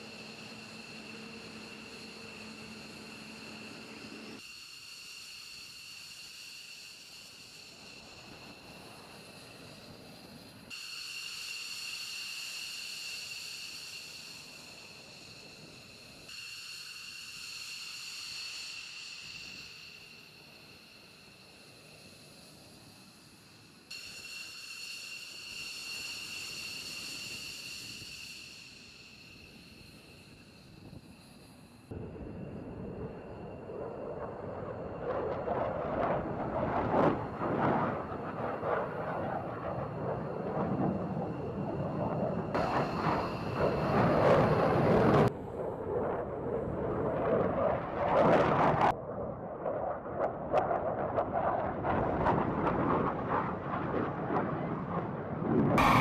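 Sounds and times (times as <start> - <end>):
rushing hiss: 0.0 - 31.9, 42.5 - 45.3, 55.8 - 56.0
jet engines whining: 33.7 - 45.3, 55.4 - 56.0.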